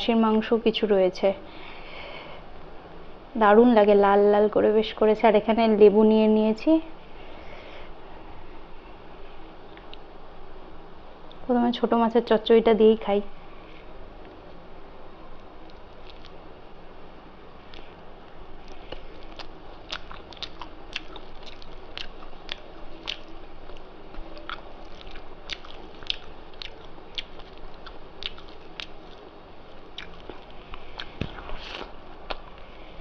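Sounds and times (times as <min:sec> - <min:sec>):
person chewing and biting: 0:15.6 - 0:16.4, 0:18.6 - 0:32.7
wet mouth clicks: 0:15.6 - 0:16.4, 0:18.9 - 0:29.2, 0:30.0 - 0:32.6.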